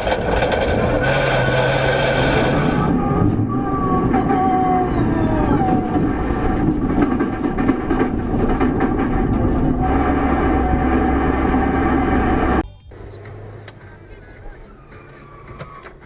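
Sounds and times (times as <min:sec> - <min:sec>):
loud vehicle noise: 0:00.0 - 0:16.0
pitched tone sliding downward: 0:01.4 - 0:06.6.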